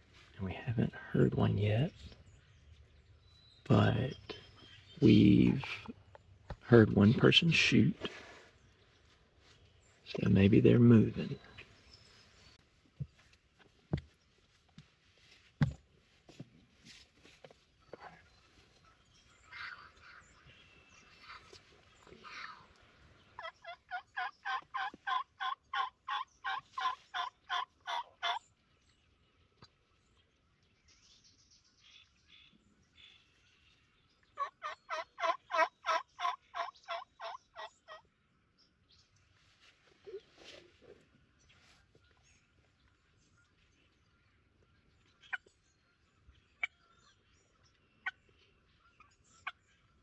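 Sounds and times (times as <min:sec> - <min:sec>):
faint songbird chirps: 0:00.0 - 0:50.0
turkey yelps: 0:23.4 - 0:28.4, 0:34.4 - 0:38.0.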